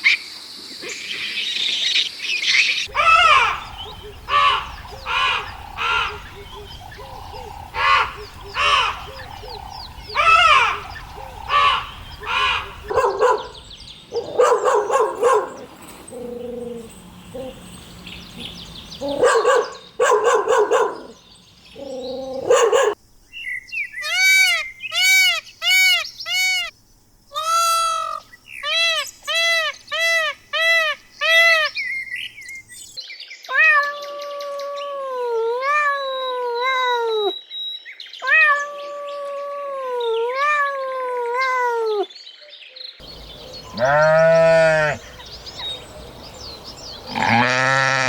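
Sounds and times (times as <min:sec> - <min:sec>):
dog barking: 0:12.8 - 0:17.6, 0:19.0 - 0:21.2, 0:22.3 - 0:23.0
long wavering cat meow: 0:33.5 - 0:37.3, 0:38.2 - 0:42.1.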